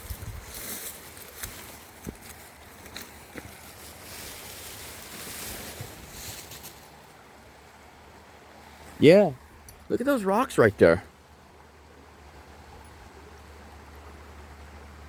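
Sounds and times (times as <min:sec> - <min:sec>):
wind on microphone: 0:00.0 - 0:00.7
footsteps on stones: 0:00.0 - 0:07.0
river water rushing: 0:00.0 - 0:15.0.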